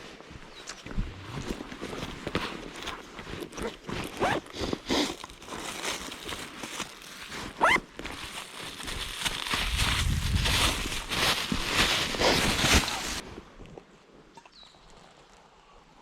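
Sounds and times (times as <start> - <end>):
handling clicks and rustling: 0.6 - 13.2.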